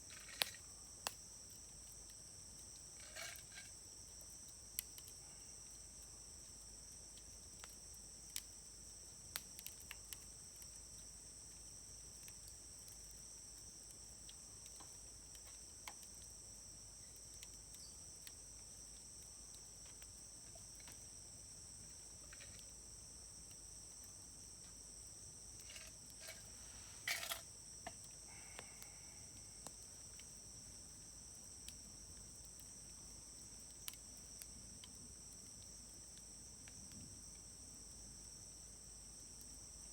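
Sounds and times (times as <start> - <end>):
insects trilling: 0.0 - 39.9
campfire crackling and popping: 6.9 - 11.2.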